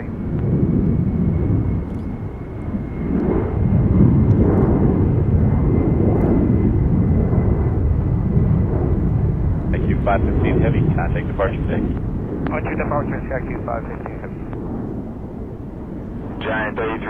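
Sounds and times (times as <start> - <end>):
jet taking off: 0.0 - 17.0.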